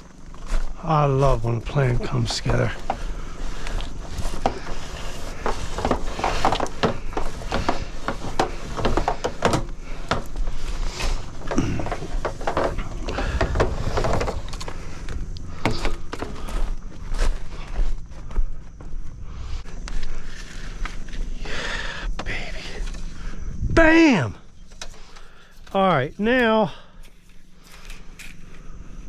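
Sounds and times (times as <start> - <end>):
scraping: 1.4 - 19.0
knocks and clatters: 4.2 - 16.7
steady low rumble: 22.1 - 24.6.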